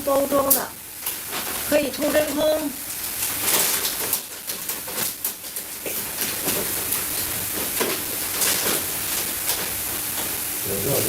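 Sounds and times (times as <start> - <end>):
short crackles: 0.3 - 11.0
vacuum sealer pump hissing: 5.1 - 11.0.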